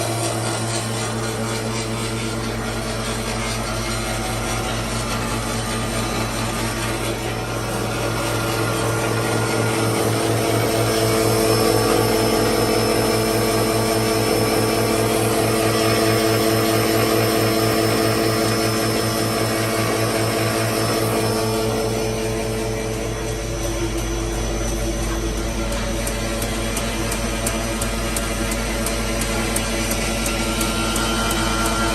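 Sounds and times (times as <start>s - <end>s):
paper cutter machine humming: 0.0s - 31.9s.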